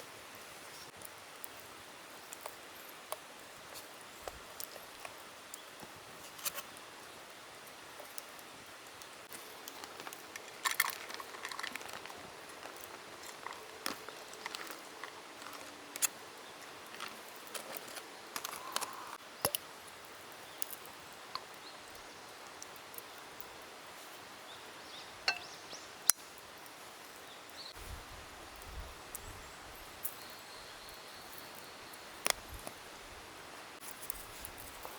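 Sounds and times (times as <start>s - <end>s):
outdoor background hiss: 0.0s - 34.9s
camp cooking gear clicking: 9.3s - 19.8s, 20.6s - 23.1s, 25.3s - 26.4s, 32.2s - 32.8s.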